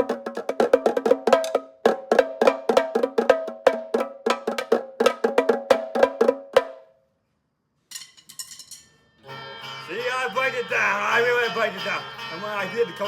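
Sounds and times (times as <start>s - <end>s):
drumming on household objects: 0.0s - 6.8s.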